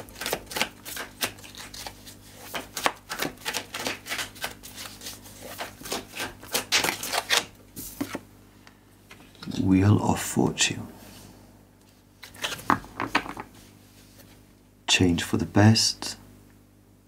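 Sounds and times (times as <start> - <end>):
cards being shuffled: 0.0 - 8.3, 11.9 - 14.4.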